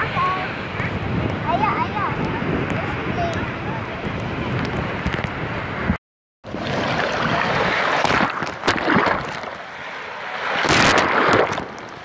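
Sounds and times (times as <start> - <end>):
wind buffeting microphone: 0.0 - 9.6
small waves washing over sand: 6.5 - 12.0.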